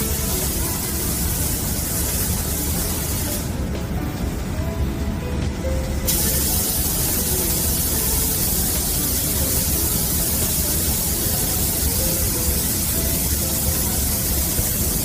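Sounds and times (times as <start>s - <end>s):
spray gun hissing: 0.0s - 3.8s, 6.0s - 15.0s.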